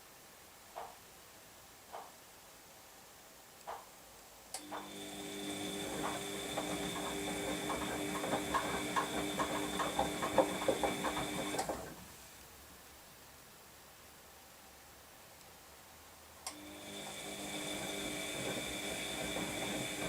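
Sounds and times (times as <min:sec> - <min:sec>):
rapid irregular clicking and knocking: 0:00.7 - 0:01.0, 0:01.9 - 0:02.2, 0:03.6 - 0:03.9, 0:04.6 - 0:12.1, 0:16.5 - 0:20.0
motor starting click: 0:04.6 - 0:11.8, 0:16.5 - 0:20.0
washing machine motor whine: 0:04.6 - 0:12.0, 0:16.5 - 0:20.0.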